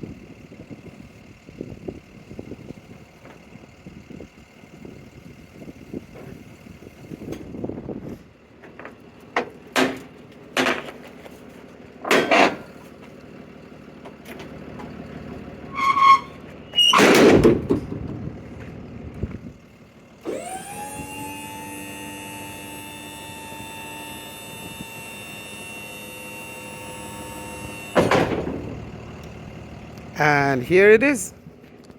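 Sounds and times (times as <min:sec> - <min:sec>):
metal knocks and clanks: 0:12.0 - 0:12.8, 0:15.8 - 0:18.7
lift gate rattling clatter: 0:12.0 - 0:12.9, 0:14.1 - 0:18.8, 0:27.0 - 0:29.0
hydraulic pump motor whine: 0:20.2 - 0:30.2.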